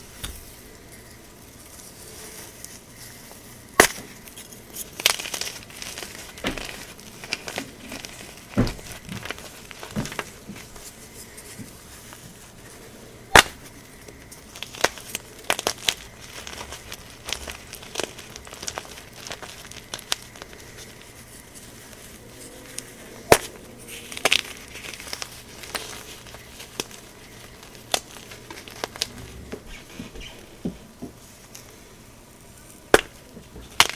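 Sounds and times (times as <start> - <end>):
chalk crunching and crumbling: 0.0 - 31.9
sharp chalk cracks: 3.8 - 11.7, 13.3 - 22.1, 24.1 - 29.2, 32.9 - 33.9.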